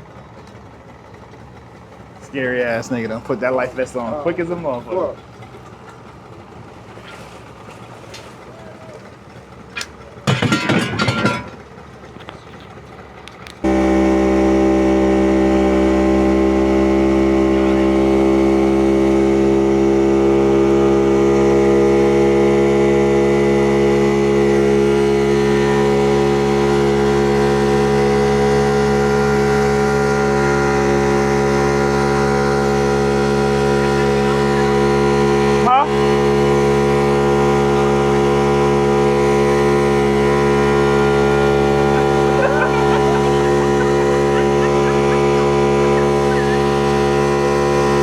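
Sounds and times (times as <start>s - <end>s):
watercraft engine running: 0.0s - 48.0s
loud burst of noise: 13.6s - 48.0s.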